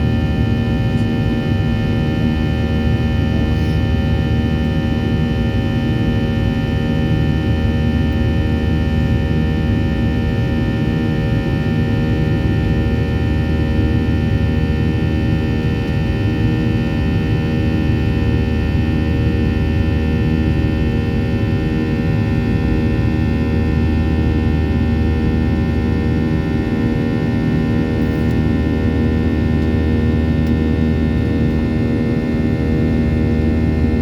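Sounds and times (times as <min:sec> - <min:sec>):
airplane cabin engine drone: 0:00.0 - 0:34.0.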